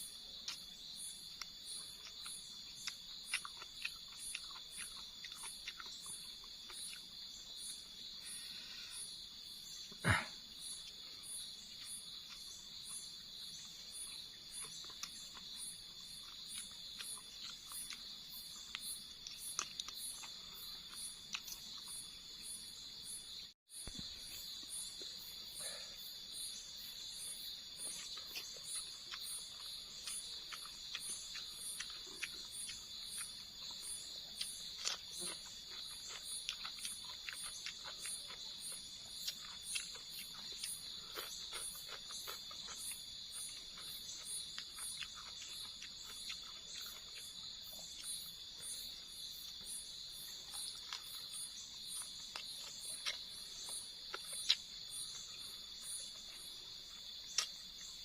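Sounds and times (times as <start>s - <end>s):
insect chirp pulsing: 0.0s - 58.0s
insects droning: 0.0s - 58.0s.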